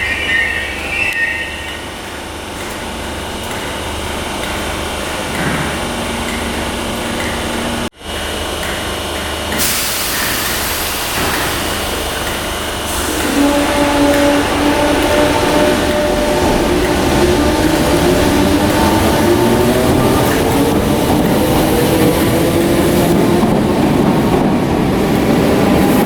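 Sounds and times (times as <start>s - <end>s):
train running noise: 0.0s - 26.0s
loud hiss: 9.6s - 12.1s.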